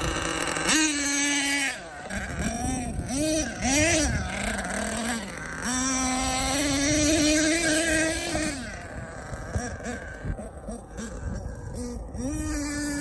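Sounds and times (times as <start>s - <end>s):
small two-stroke engine revving: 0.0s - 13.0s.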